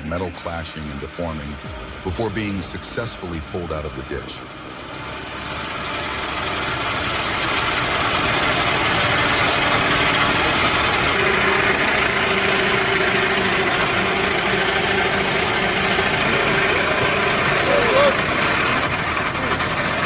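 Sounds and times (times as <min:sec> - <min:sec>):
heavy vehicle engine running: 0:00.0 - 0:20.0.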